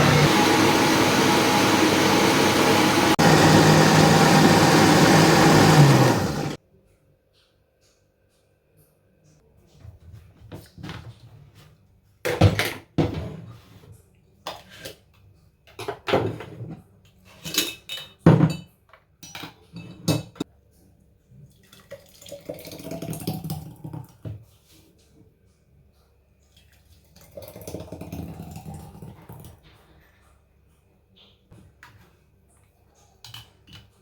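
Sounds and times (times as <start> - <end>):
dishes and utensils clattering: 15.7 - 20.4.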